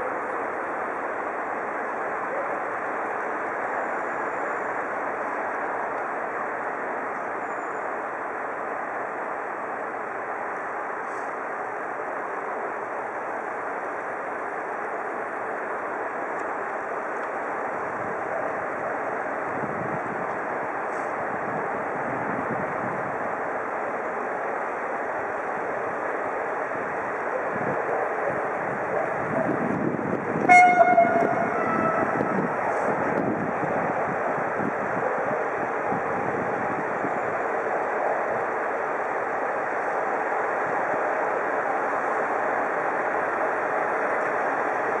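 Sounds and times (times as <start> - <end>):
train rumble: 0.0 - 45.0
train horn toot: 30.4 - 32.8.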